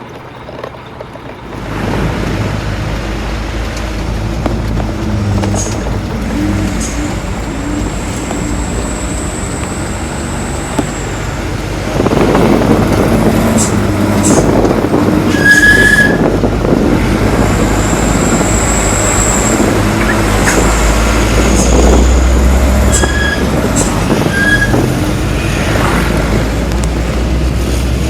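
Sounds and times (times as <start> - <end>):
low vehicle rumble: 0.0 - 28.0
high-pitched squeals: 5.1 - 12.0, 15.2 - 16.4, 17.3 - 26.0.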